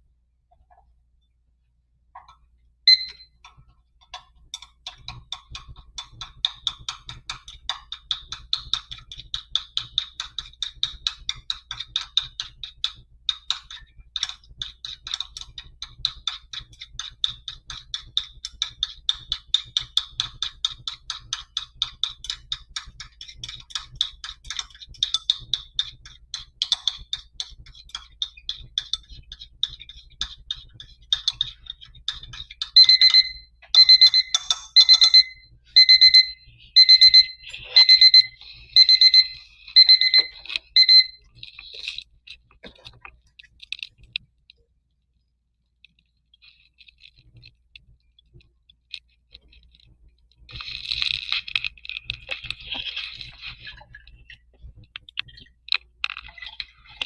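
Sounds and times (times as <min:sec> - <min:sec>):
timer beep: 0:02.9 - 0:03.4, 0:32.8 - 0:41.2
timer ticking rapidly: 0:02.9 - 0:41.4.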